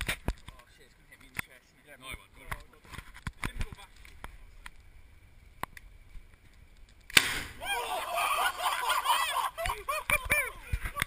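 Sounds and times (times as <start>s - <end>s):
potato cannon bang: 7.1s - 7.6s
people shouting and whooping: 7.6s - 11.0s.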